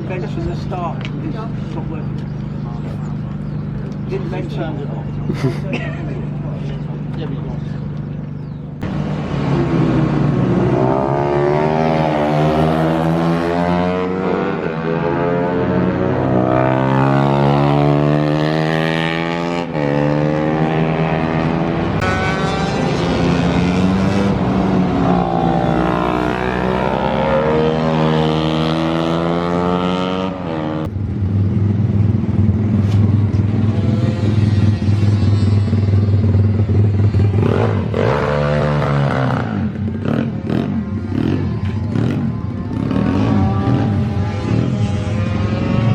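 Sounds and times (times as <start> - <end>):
pit bike engine revving: 8.8 - 30.9, 31.6 - 45.9.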